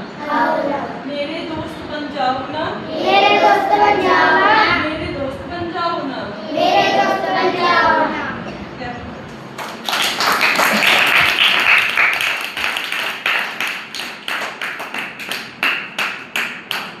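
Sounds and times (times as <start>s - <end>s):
hands clapping: 9.6s - 17.0s.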